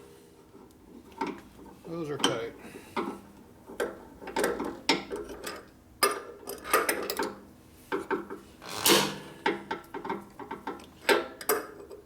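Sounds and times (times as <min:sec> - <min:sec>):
wrench scraping and clinking metal: 0:08.6 - 0:09.2.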